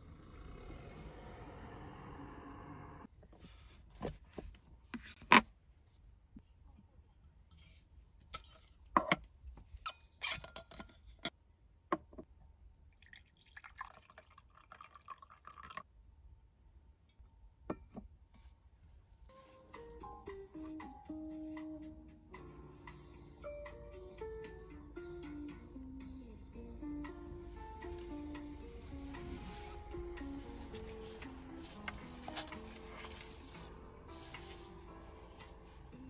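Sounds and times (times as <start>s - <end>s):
coffee pouring into a cup: 12.7s - 15.9s.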